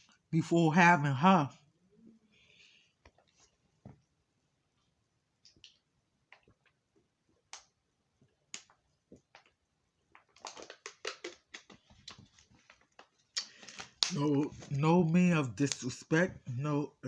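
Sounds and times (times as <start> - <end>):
chewing mouth clicks and smacks: 5.4 - 7.8, 8.5 - 14.2.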